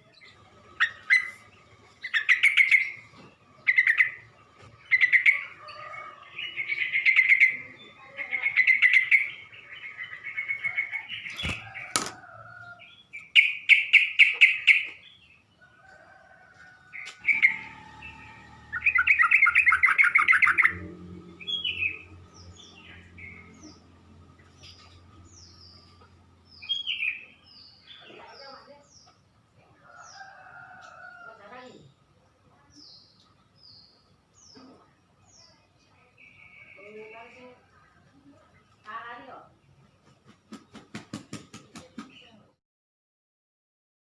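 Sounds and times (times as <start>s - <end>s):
bird song: 0.0s - 42.6s
low rumble: 17.2s - 26.6s.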